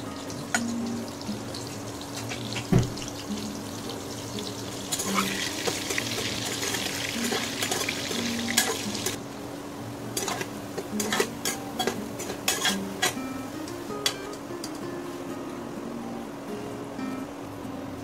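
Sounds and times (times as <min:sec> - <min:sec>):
food sizzling in hot oil: 0:00.0 - 0:09.2, 0:10.2 - 0:14.4
metal spatula scraping a pot: 0:04.9 - 0:09.2, 0:10.2 - 0:13.2.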